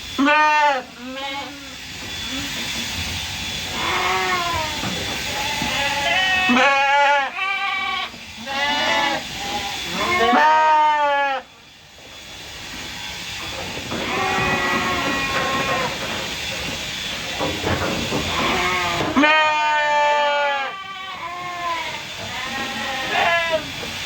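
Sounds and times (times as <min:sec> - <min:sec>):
sheep bleating: 0:03.8 - 0:11.5, 0:14.0 - 0:16.0, 0:18.3 - 0:23.7.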